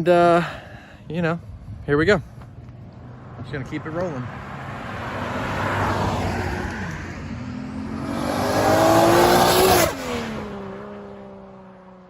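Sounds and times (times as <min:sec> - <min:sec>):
car accelerating past: 0:02.9 - 0:12.0.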